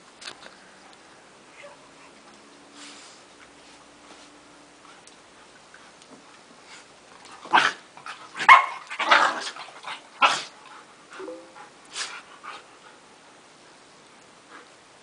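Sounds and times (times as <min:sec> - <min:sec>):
dogs barking: 0:08.4 - 0:08.9.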